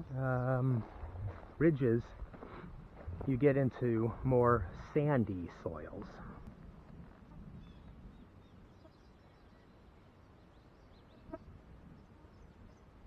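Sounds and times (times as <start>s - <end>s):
distant bird chirps: 7.3s - 13.0s.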